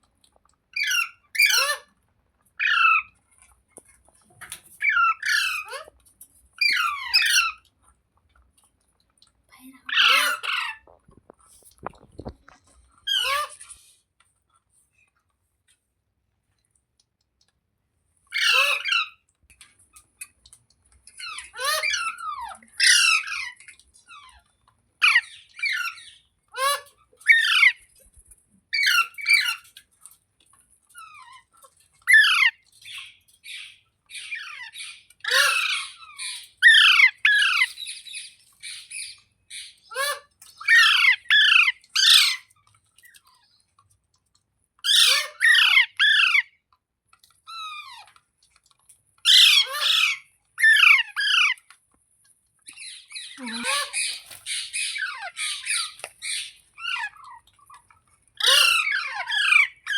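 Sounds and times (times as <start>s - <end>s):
parakeet squawking: 0.8s - 1.9s, 9.9s - 11.0s, 13.0s - 13.7s, 18.3s - 19.2s, 21.2s - 23.6s, 32.1s - 42.5s, 44.9s - 46.5s, 49.3s - 51.6s, 52.8s - 57.4s, 58.4s - 59.9s.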